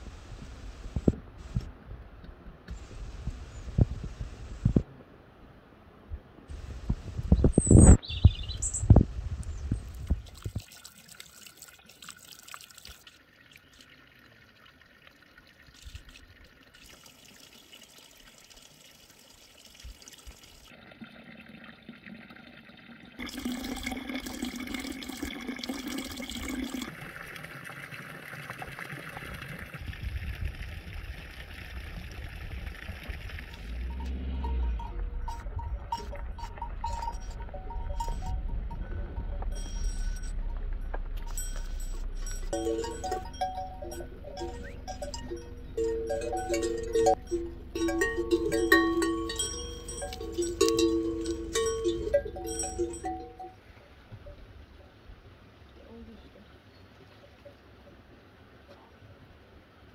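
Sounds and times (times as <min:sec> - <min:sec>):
running water: 0:08.9 - 0:53.6.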